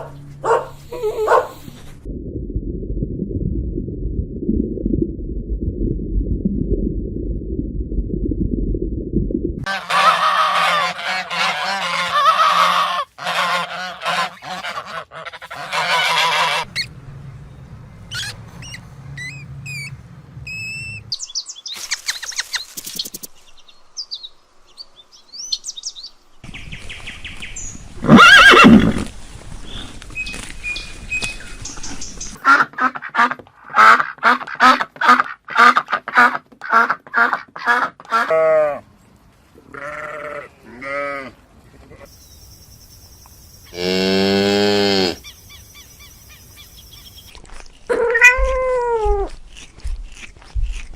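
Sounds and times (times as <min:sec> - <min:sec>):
low rumble: 0:01.6 - 0:09.7
thin high chirps: 0:42.1 - 0:43.8.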